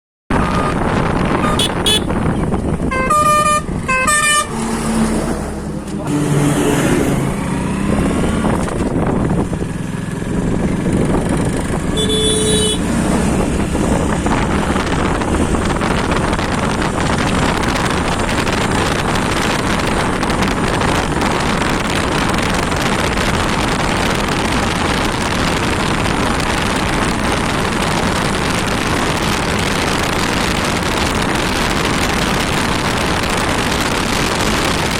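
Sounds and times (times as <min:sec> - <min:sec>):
vehicle horns honking: 0:00.3 - 0:04.7, 0:11.9 - 0:13.0
motorcycle engine: 0:00.3 - 0:34.9
road noise: 0:00.3 - 0:34.9.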